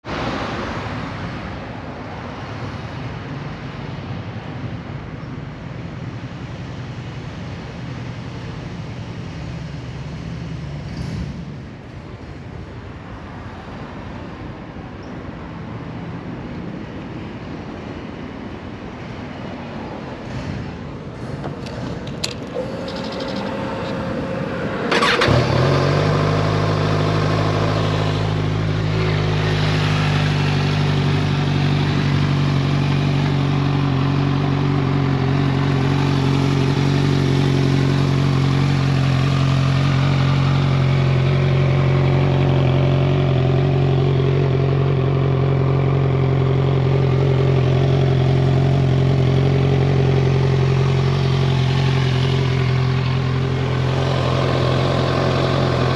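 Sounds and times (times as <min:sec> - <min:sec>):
motorcycle starter whirring: 0:21.5 - 0:26.4
motorcycle engine idling: 0:21.6 - 0:55.9.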